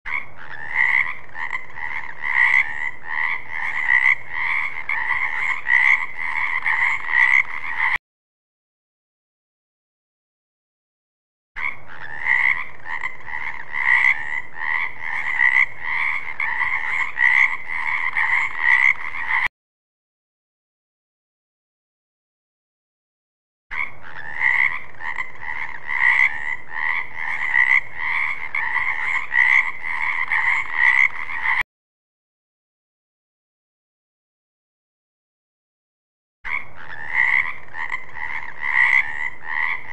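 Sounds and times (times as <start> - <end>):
frog croaking: 0.1 - 8.0, 11.6 - 19.5, 23.7 - 31.6, 36.5 - 39.9.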